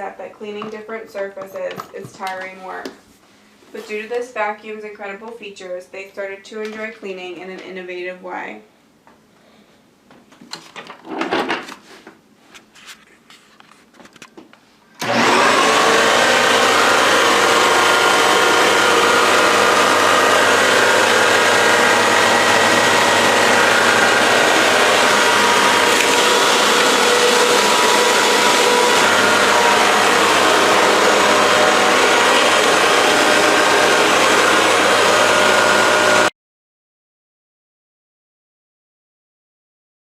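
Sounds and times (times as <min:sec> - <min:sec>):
vacuum cleaner running: 0:15.0 - 0:36.3.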